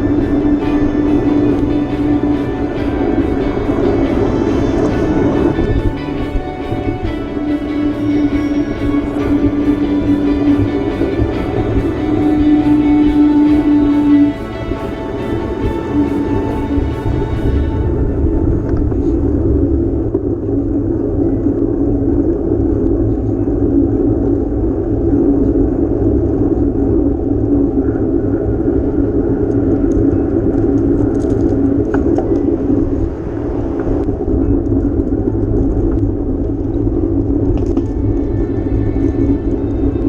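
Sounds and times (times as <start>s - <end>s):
wind and road noise: 14.5s - 40.0s.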